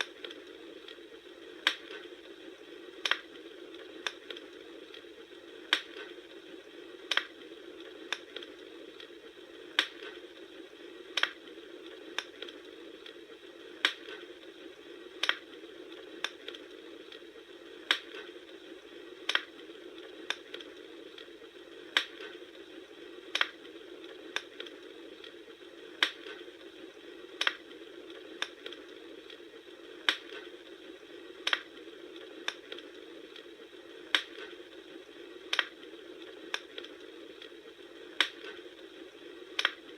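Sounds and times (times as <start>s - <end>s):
sharp pops of fire: 0.0s - 2.2s, 3.0s - 5.0s, 5.6s - 6.2s, 7.0s - 7.4s, 8.0s - 9.1s, 9.7s - 10.3s, 11.1s - 14.3s, 15.1s - 15.5s, 16.2s - 17.2s, 17.8s - 18.4s, 19.2s - 19.6s, 20.2s - 21.3s, 21.9s - 22.5s, 23.2s - 23.6s, 24.3s - 25.3s, 26.0s - 26.5s, 27.3s - 29.4s, 30.0s - 30.6s, 31.4s - 34.7s, 35.4s - 35.8s, 36.4s - 37.5s, 38.1s - 38.7s, 39.4s - 39.9s
wood fire crackling: 0.0s - 39.9s.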